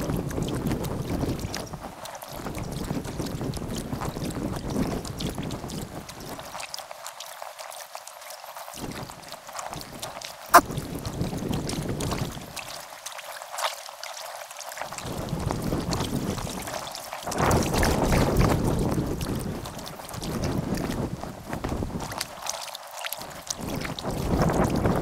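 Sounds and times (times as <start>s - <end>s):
wind on microphone: 0.0s - 6.6s, 8.8s - 12.6s, 14.9s - 22.4s, 23.2s - 25.0s
paddle splashing water: 0.0s - 25.0s.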